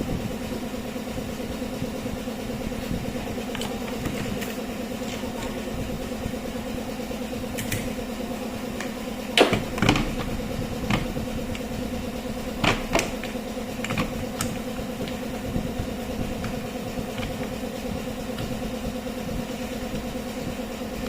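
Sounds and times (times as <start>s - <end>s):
steady hum: 0.0s - 21.0s
clicks and knocks of hard parts: 8.8s - 11.7s, 12.6s - 15.2s.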